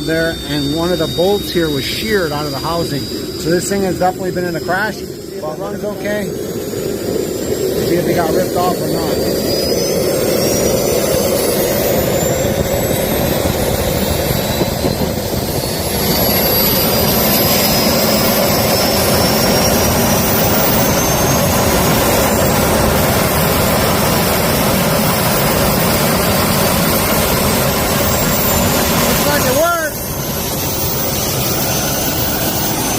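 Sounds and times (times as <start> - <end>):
jet engine whine: 0.0 - 32.9.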